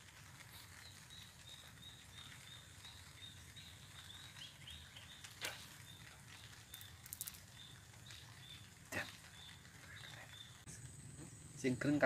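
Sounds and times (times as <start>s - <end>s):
small bird chirping: 0.4s - 12.0s
low steady rumble: 7.6s - 12.0s.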